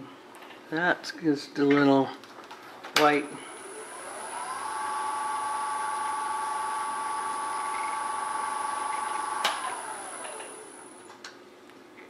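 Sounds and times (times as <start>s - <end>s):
lathe motor whining: 3.4s - 11.1s.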